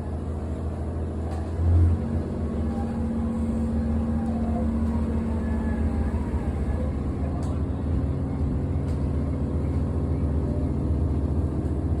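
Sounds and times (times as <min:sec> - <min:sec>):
railcar engine humming: 0:00.0 - 0:12.0.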